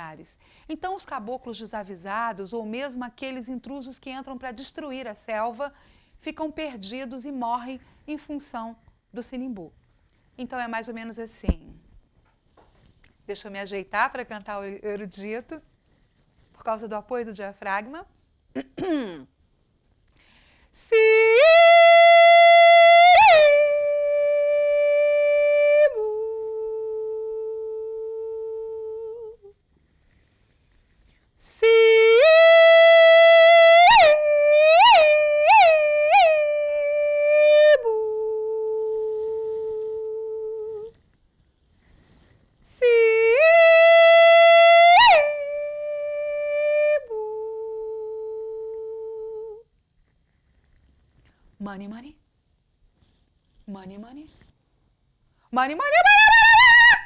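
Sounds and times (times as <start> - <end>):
woman singing classical aria: 20.8 - 29.5, 31.4 - 41.0, 42.7 - 49.6.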